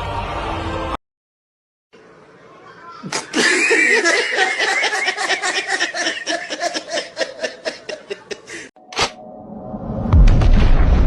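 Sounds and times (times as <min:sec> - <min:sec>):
person laughing: 0:03.1 - 0:08.7.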